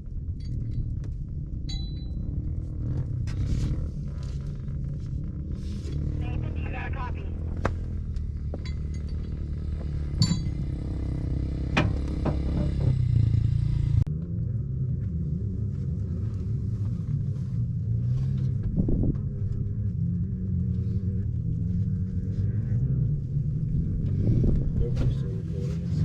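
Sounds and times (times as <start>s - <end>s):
low mechanical rumble: 0.0s - 26.0s
sharp knocks: 11.7s - 13.0s.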